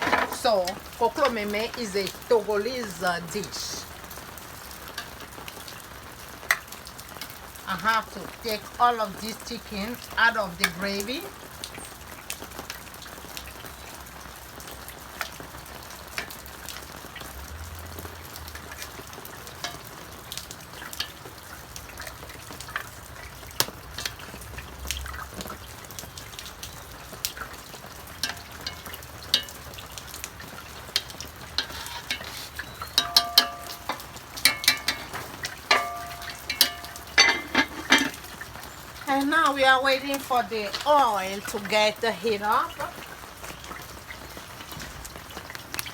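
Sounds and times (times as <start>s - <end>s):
metal utensils clinking on pan: 0.0s - 3.9s, 7.7s - 11.3s, 18.7s - 21.2s, 28.1s - 43.0s
oil sizzling in a pan: 0.0s - 45.9s.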